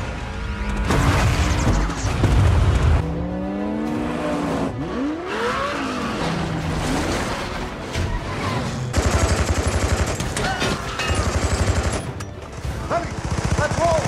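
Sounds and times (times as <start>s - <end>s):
car engines revving and passing: 3.0s - 7.6s.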